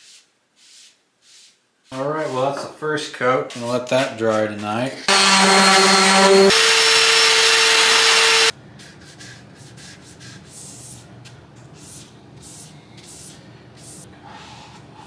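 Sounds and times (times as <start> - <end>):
electric sander on wood: 5.1 - 8.5.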